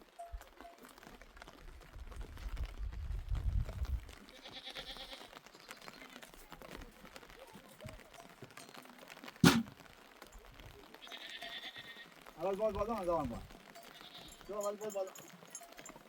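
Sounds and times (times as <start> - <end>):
livestock bleating: 4.4 - 6.4, 11.0 - 12.2, 13.8 - 14.6
sharp knock: 9.4 - 9.7.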